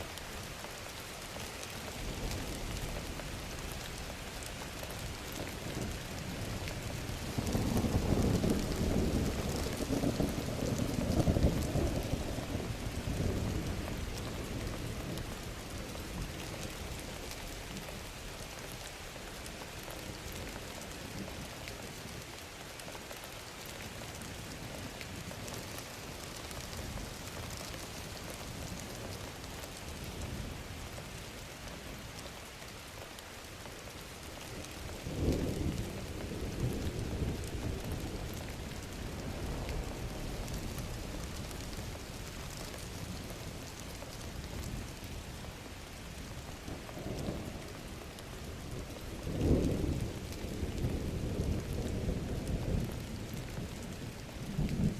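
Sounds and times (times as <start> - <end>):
rumble of thunder: 5.4 - 17.0, 34.6 - 43.8, 46.6 - 54.9
rain hissing: 34.1 - 52.0.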